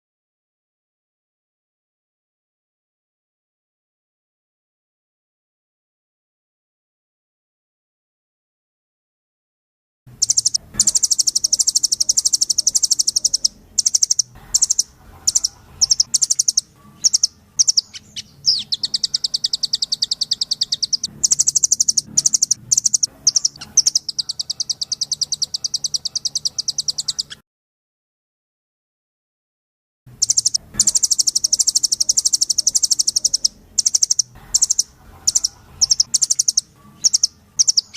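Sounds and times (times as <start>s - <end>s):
songbird singing fast trills: 10.2s - 27.4s, 30.2s - 37.9s.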